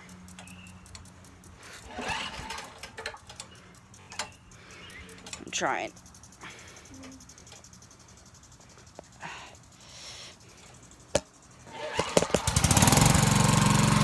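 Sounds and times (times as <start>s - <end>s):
lawn mower engine starting: 0.0s - 14.0s.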